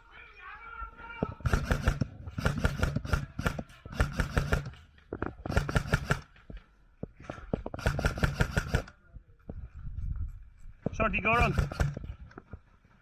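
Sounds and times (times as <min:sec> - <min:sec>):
airsoft guns firing bursts: 0:01.2 - 0:06.6, 0:07.3 - 0:09.0, 0:11.1 - 0:12.3.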